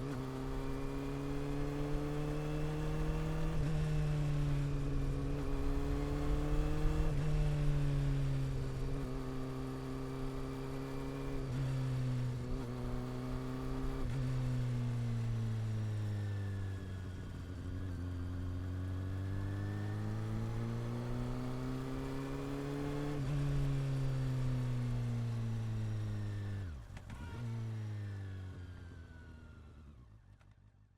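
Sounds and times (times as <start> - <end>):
motorcycle engine and exhaust: 0.0 - 30.9.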